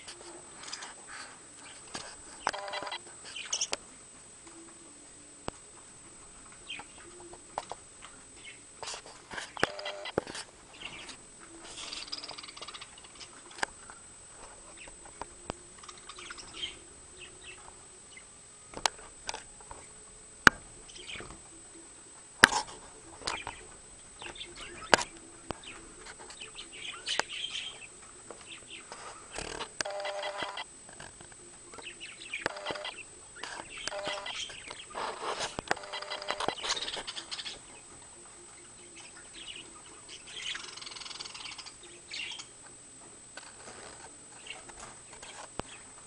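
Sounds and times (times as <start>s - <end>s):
sharp clicks: 2.4s - 3.0s, 29.4s - 30.6s, 32.4s - 33.0s, 35.6s - 37.0s
budgerigar chirping and warbling: 11.8s - 13.3s, 31.9s - 35.0s, 35.8s - 37.7s, 39.0s - 42.5s.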